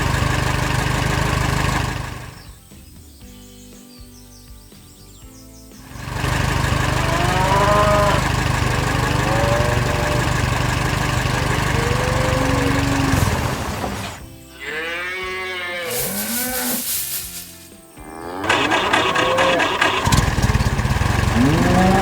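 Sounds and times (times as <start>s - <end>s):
cows mooing: 6.2s - 14.0s, 14.6s - 19.8s, 21.2s - 22.0s.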